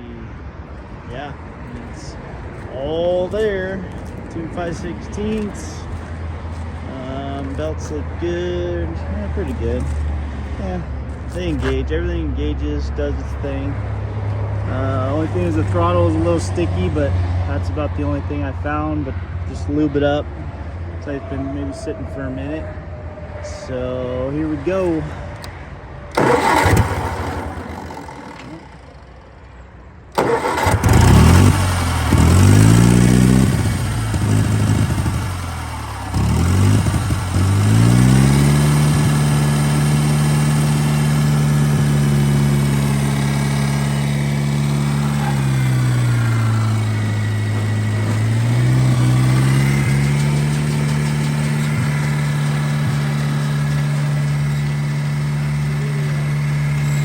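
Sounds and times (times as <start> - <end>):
gas engine starting and running: 12.9 - 17.2, 24.6 - 57.0.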